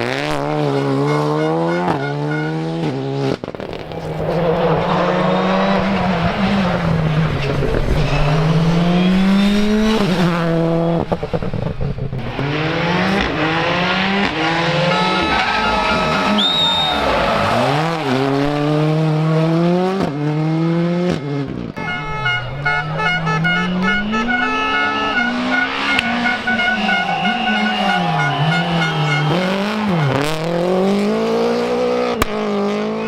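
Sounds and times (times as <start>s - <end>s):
rally car engine revving: 0.0s - 33.0s
tyres squealing: 14.1s - 18.3s, 21.8s - 30.6s.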